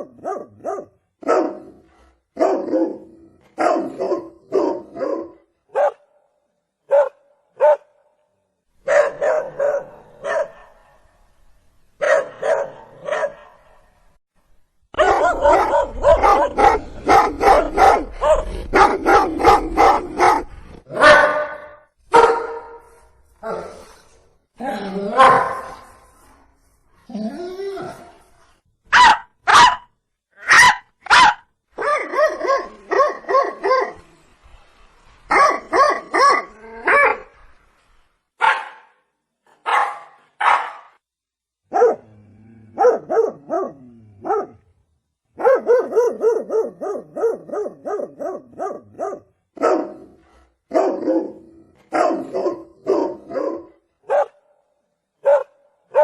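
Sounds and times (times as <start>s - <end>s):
dog barking: 0.0s - 6.2s, 6.9s - 8.0s, 8.8s - 11.2s, 12.0s - 13.9s, 15.0s - 22.9s, 25.2s - 25.8s, 28.9s - 34.0s, 35.3s - 37.3s, 38.4s - 39.0s, 39.6s - 41.0s, 41.7s - 42.1s, 42.8s - 44.6s, 45.4s - 54.6s, 55.2s - 56.0s.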